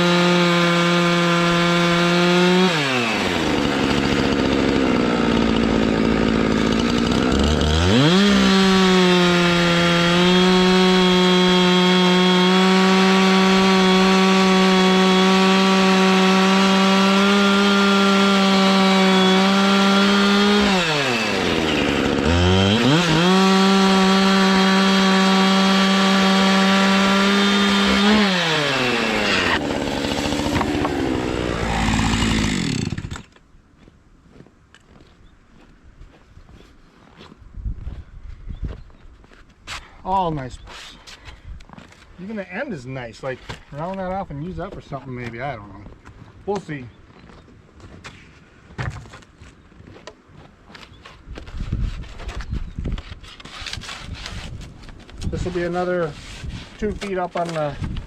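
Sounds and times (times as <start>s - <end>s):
chainsaw cutting log: 0.0s - 33.4s, 53.0s - 58.0s.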